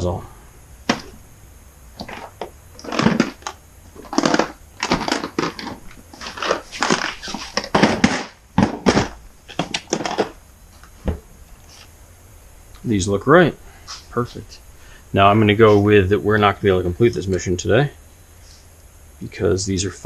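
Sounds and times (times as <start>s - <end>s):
objects knocking and clattering: 0.9s - 1.2s, 2.0s - 10.4s
rustling and crinkling: 1.9s - 12.0s.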